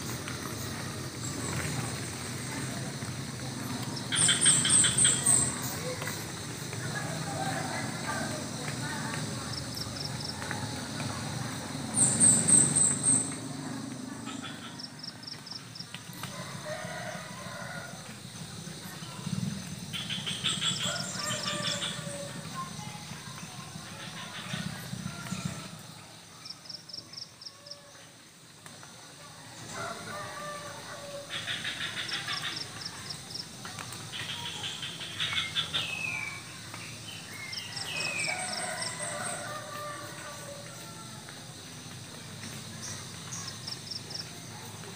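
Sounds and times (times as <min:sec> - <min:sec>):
birds chattering: 0:00.5 - 0:06.0.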